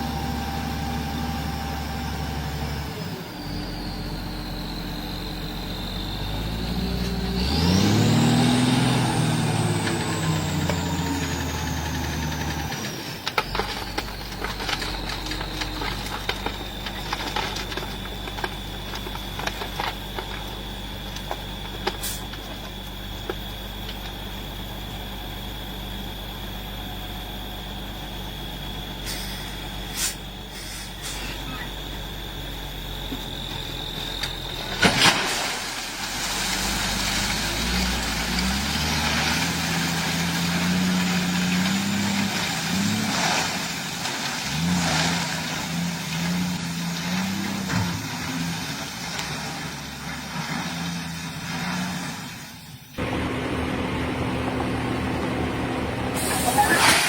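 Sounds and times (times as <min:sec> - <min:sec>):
diesel truck engine revving: 0:00.0 - 0:57.0.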